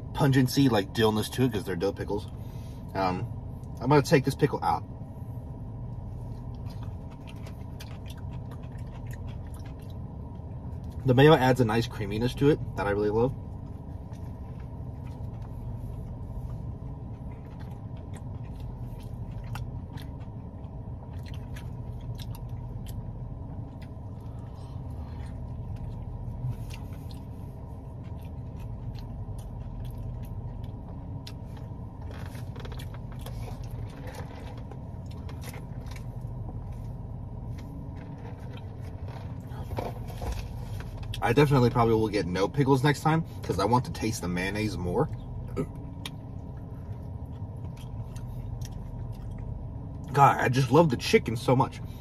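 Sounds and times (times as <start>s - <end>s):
car cabin hum: 0.0s - 52.0s
person chewing food: 5.4s - 11.0s, 13.5s - 41.2s, 45.1s - 50.1s.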